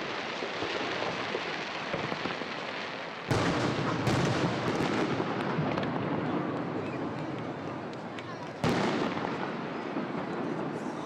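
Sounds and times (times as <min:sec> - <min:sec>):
fireworks crackling: 0:00.0 - 0:11.0
volley of firework bangs: 0:00.0 - 0:11.0.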